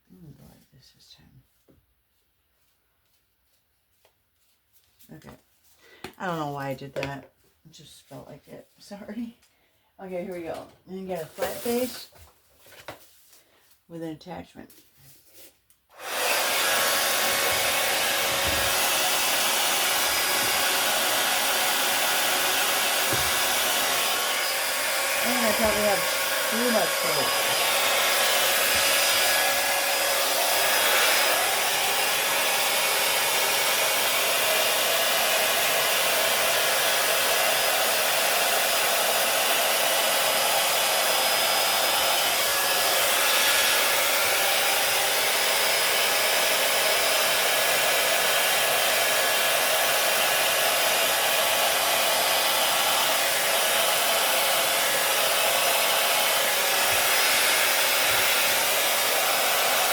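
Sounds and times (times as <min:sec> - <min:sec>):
hair dryer blowing: 0:10.0 - 0:12.1, 0:15.9 - 0:59.9.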